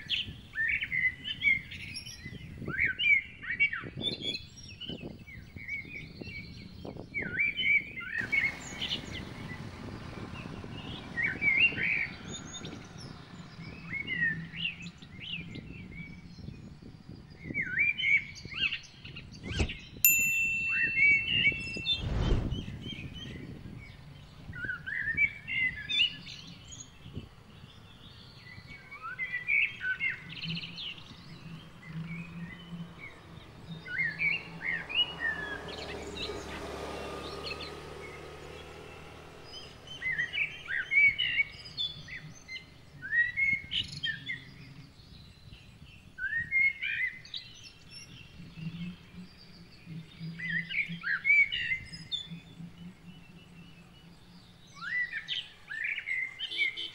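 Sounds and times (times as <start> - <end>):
wild birds chirping: 0.0 - 56.9
soft rushing sound: 20.1 - 23.6.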